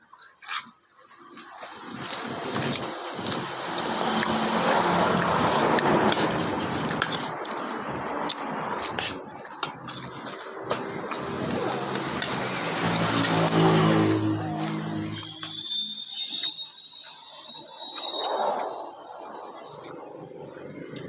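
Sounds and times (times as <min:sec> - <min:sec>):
motor vehicle running: 0:02.0 - 0:15.6.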